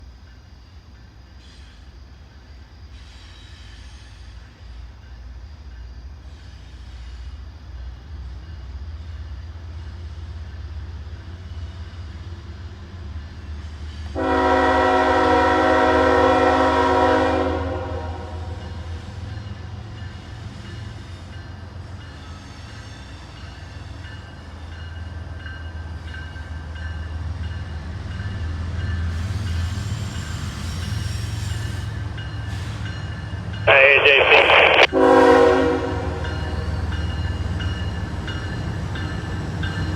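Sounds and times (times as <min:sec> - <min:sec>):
locomotive air horn blast: 0:14.2 - 0:18.3, 0:34.9 - 0:36.2.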